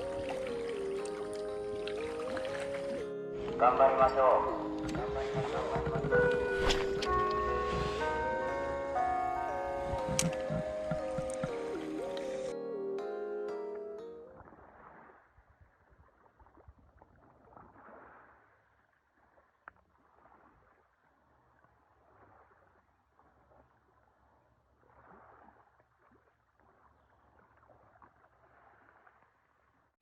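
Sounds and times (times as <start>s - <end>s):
sea water lapping: 0.0s - 12.5s.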